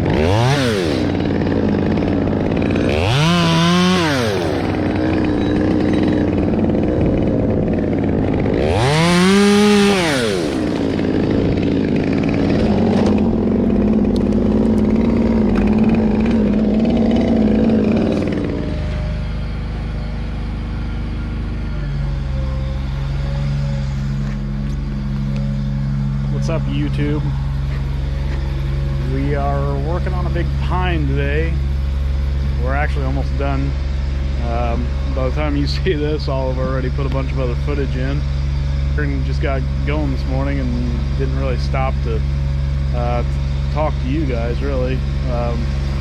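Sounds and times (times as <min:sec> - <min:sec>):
chainsaw revving: 0:00.0 - 0:46.0.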